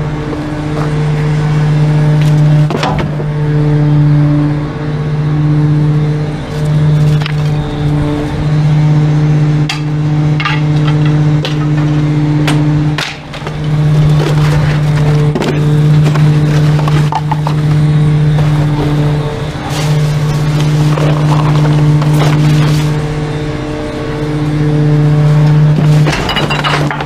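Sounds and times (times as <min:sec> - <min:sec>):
truck engine running: 0:00.0 - 0:27.0
sharp knocks and clanks: 0:09.6 - 0:17.8, 0:25.7 - 0:27.0.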